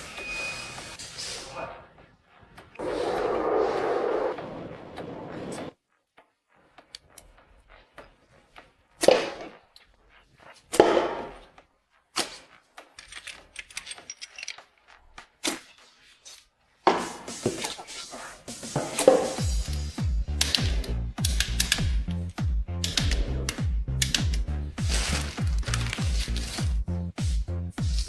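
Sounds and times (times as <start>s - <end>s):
metal tools clanking: 13.0s - 15.0s.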